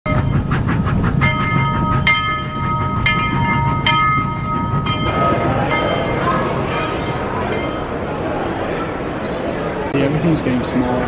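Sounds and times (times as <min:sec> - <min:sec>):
train rumble: 0:00.1 - 0:11.0
metallic clang ringing: 0:01.2 - 0:08.5.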